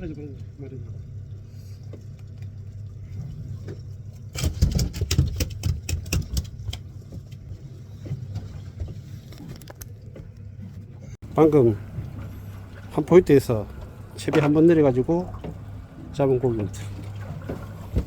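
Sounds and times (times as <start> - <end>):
boat engine humming: 0.0 - 4.4, 6.5 - 18.0.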